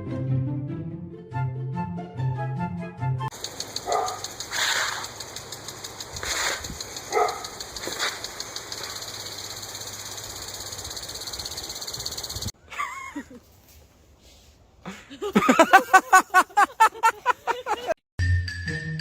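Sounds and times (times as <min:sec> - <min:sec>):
pulsing machine noise: 0:03.3 - 0:12.5
dog barking: 0:03.8 - 0:04.3, 0:07.1 - 0:07.6.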